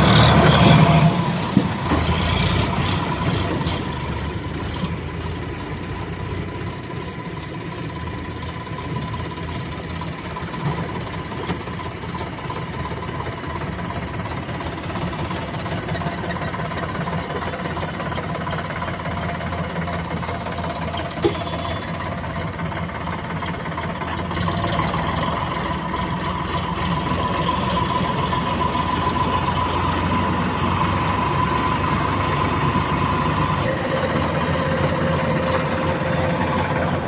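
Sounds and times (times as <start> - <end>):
diesel engine running: 0.0 - 37.0
high steady whine: 27.2 - 37.0.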